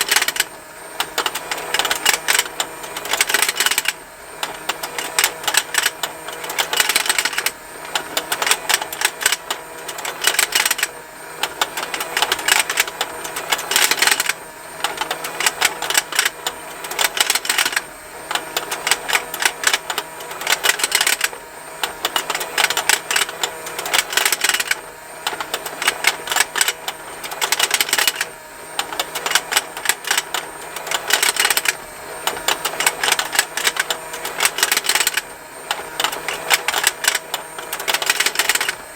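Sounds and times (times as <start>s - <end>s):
toy motor plastic ticking: 0.0s - 38.9s.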